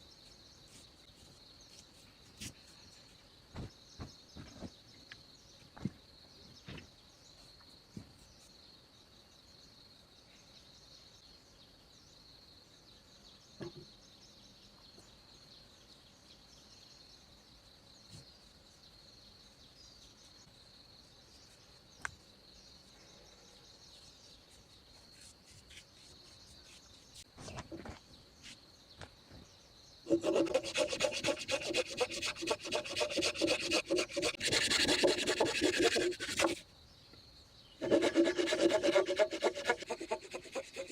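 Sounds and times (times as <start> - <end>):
high insect drone: 29.7 - 40.9
rhythmic scraping of wood: 30.1 - 36.6, 37.8 - 40.9.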